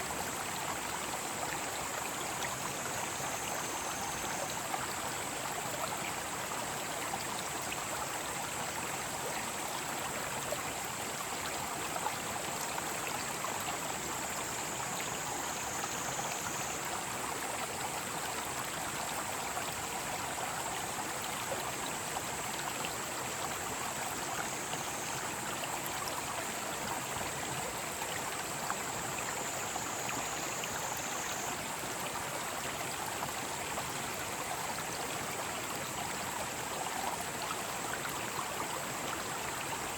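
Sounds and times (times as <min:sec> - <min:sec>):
stream rushing over rocks: 0:00.0 - 0:39.9
cicadas chorus: 0:02.1 - 0:04.7, 0:13.8 - 0:17.0, 0:26.9 - 0:31.9.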